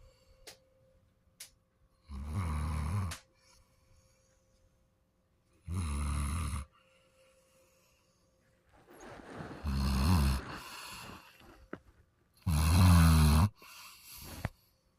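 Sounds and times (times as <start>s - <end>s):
dog snoring: 2.0s - 3.6s, 5.6s - 6.7s, 9.2s - 11.8s, 12.4s - 14.5s.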